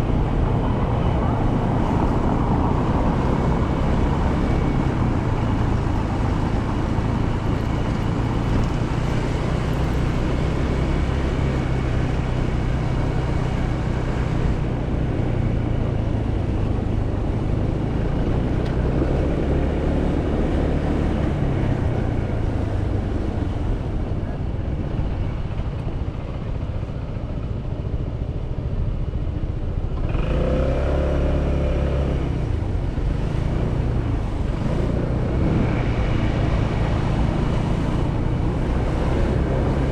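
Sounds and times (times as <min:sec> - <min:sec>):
wind and road noise: 0:00.0 - 0:39.9
motorcycle engine accelerating: 0:29.7 - 0:39.9.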